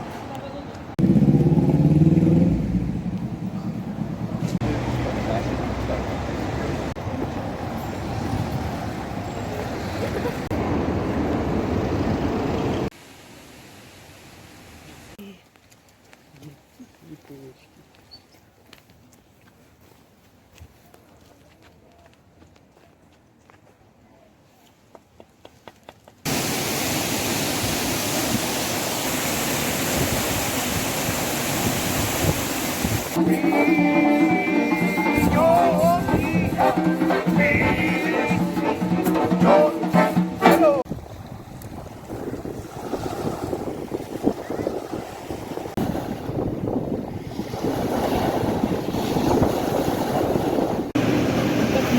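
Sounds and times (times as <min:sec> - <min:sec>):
road traffic rumble: 0:00.0 - 0:13.0, 0:50.8 - 0:51.9
waterfall rushing: 0:26.3 - 0:40.9.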